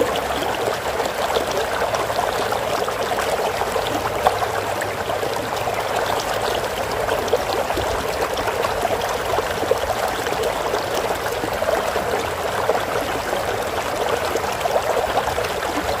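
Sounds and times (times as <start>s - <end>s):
stream babbling: 0.0s - 16.0s.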